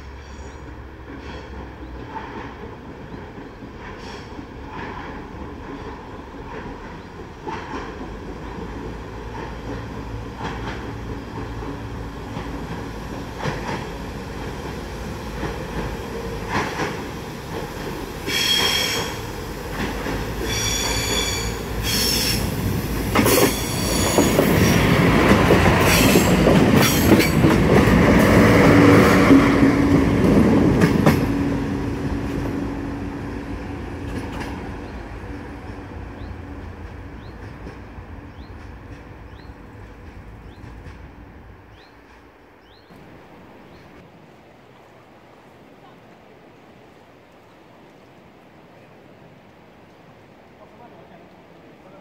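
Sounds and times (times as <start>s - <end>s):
high-pitched train squeals: 0.0s - 1.6s, 18.2s - 19.3s, 20.4s - 22.5s, 23.2s - 24.8s
train passing: 0.0s - 52.0s.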